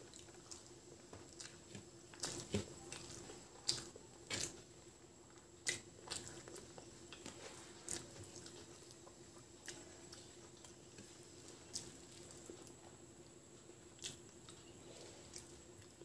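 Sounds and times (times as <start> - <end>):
chewing with wet mouth smacks: 0.0 - 4.6, 5.3 - 13.0, 13.9 - 16.0
fingers squishing rice: 0.0 - 12.9.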